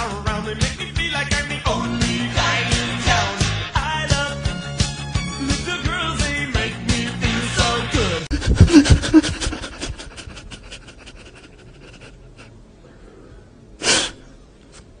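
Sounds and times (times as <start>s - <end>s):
man sobbing: 5.3s - 6.4s, 7.4s - 12.5s.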